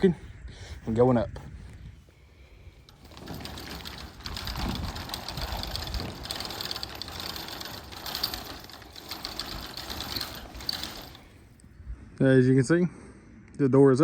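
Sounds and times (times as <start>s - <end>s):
rope rattling through pulleys: 2.7s - 11.7s.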